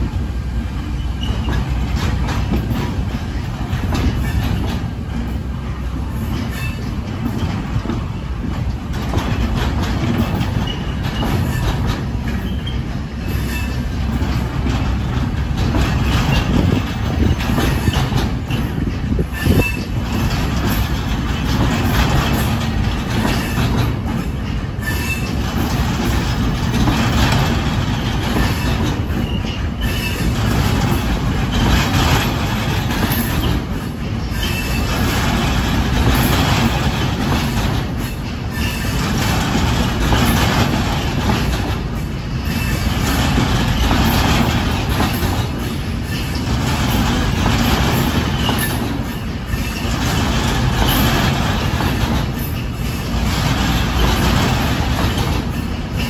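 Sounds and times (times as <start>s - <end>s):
train wheels rumbling and clattering: 0.0s - 56.0s.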